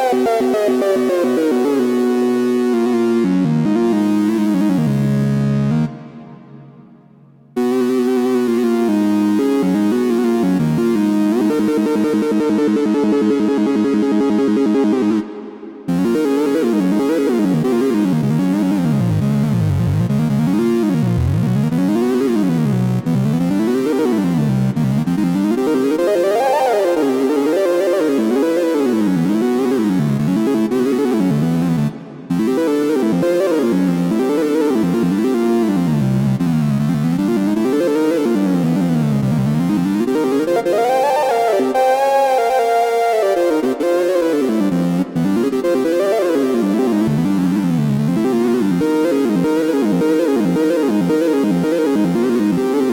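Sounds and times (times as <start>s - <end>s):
synthesizer playing gliding notes: 37.6s - 47.6s.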